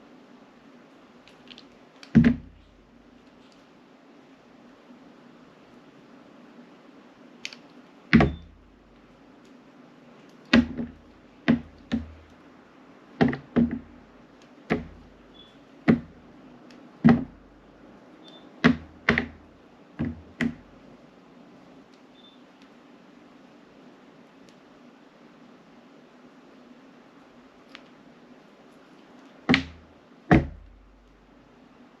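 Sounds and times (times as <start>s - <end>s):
knife knocking cutting board: 14.7s - 15.0s.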